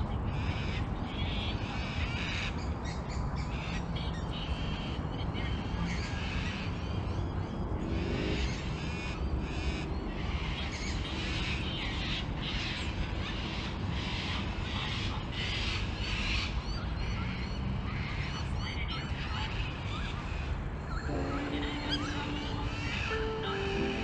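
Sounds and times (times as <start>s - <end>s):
birds calling: 20.4s - 24.0s.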